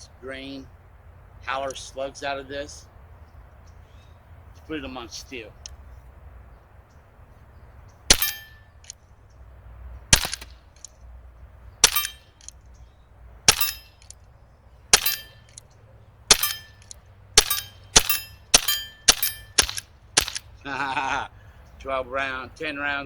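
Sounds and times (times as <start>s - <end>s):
metallic ring of steel target: 8.1s - 8.9s, 11.8s - 12.5s, 13.5s - 14.1s, 14.9s - 15.6s, 16.3s - 20.5s
air pistol shots: 8.1s - 9.0s, 10.1s - 10.9s, 11.8s - 12.6s, 13.5s - 14.2s, 14.9s - 15.6s, 16.3s - 20.6s.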